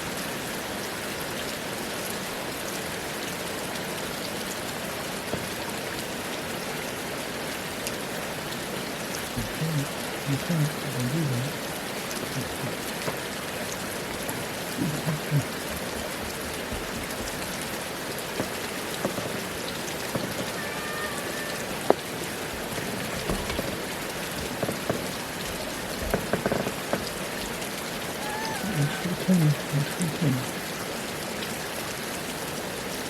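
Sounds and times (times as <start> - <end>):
rain pattering on surfaces: 0.0 - 33.0
drips ticking: 9.4 - 21.1, 21.8 - 30.7.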